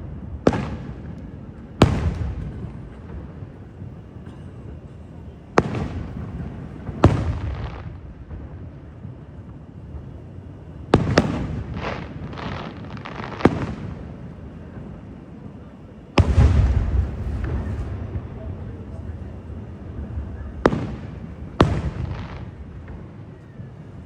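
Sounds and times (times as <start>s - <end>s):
firework shells bursting with bangs: 0.4s - 15.1s, 16.1s - 23.8s
small firework pops: 10.9s - 14.9s, 16.2s - 19.1s, 20.2s - 23.8s.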